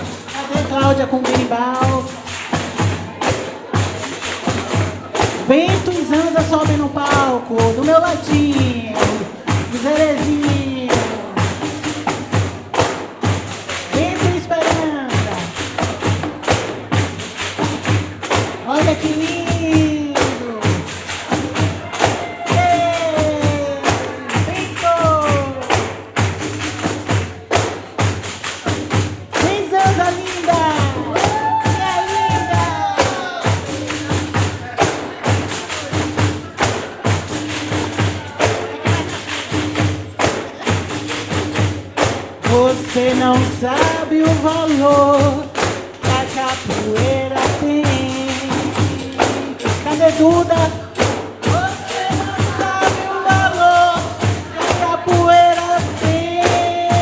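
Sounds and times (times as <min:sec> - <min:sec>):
frame drums with jingles: 0:00.0 - 0:57.0
person calling out: 0:21.9 - 0:25.7.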